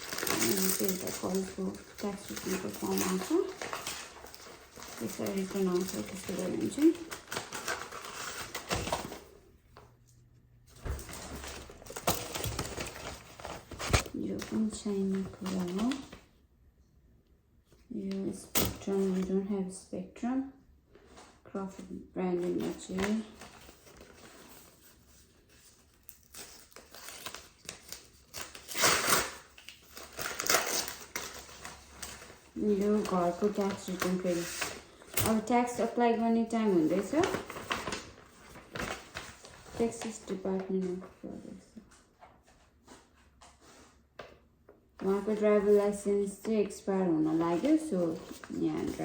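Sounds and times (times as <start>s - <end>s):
paper rustling: 0.0s - 9.4s, 10.7s - 16.3s, 21.0s - 44.4s, 45.0s - 49.0s.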